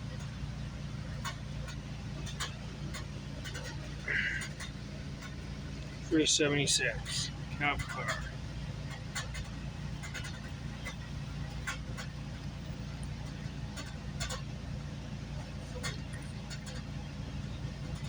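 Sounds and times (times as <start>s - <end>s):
light clicks and rattles: 0.0s - 18.0s
train rumble from inside coach: 0.0s - 18.0s.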